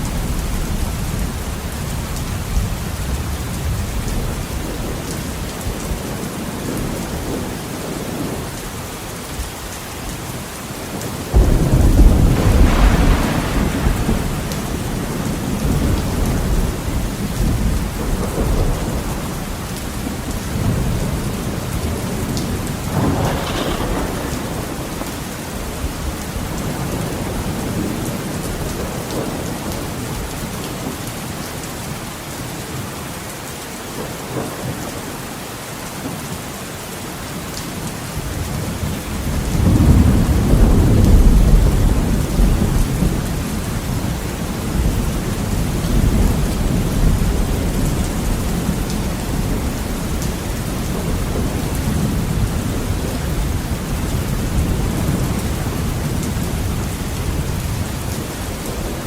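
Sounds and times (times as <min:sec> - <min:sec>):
heavy rain on a window: 0:00.0 - 0:59.0
thunder rumbling: 0:10.9 - 0:30.9, 0:38.2 - 0:59.0.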